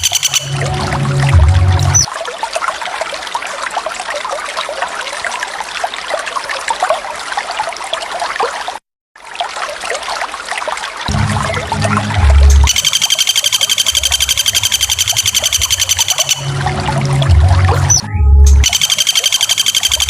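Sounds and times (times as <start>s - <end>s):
water trickling and splashing: 0.0s - 20.0s
low pitched sound: 0.4s - 2.1s, 11.1s - 12.8s, 16.4s - 18.7s.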